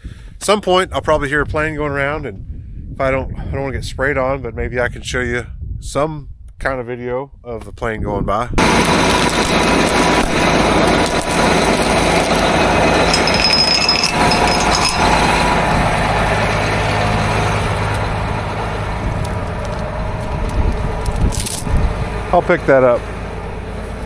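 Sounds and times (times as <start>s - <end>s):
low hum: 8.6s - 22.3s
tractor engine running: 8.6s - 24.0s.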